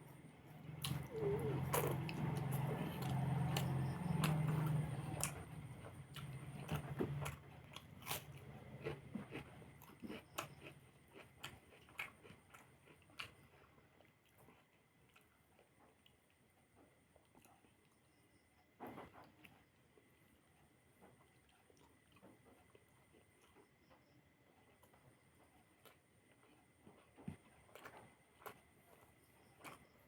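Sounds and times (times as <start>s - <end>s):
person chewing crunchy food: 0.0s - 18.0s, 24.5s - 30.0s.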